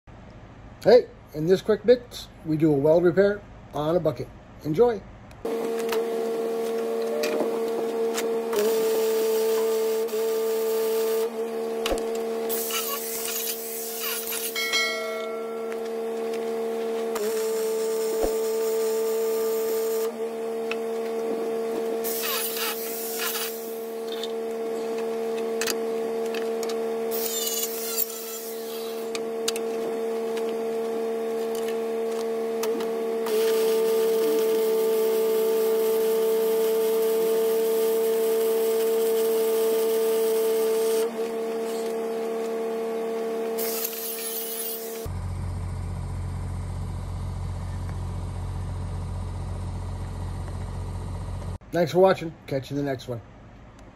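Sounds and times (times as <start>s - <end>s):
bell-like droning music: 14.6s - 15.9s.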